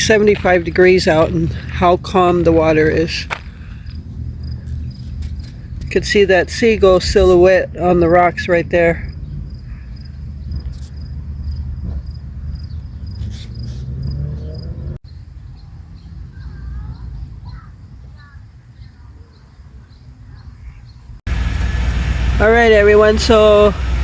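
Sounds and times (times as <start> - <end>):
crickets chirping: 0.0 - 5.8, 6.6 - 15.6.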